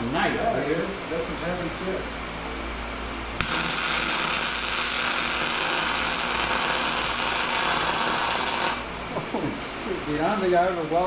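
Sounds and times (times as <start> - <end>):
welder arc hissing: 3.4 - 9.0.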